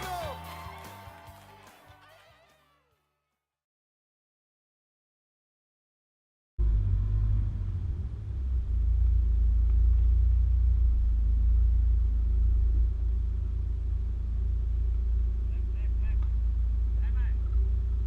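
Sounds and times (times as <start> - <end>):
vehicle engine rumbling: 6.6 - 18.0.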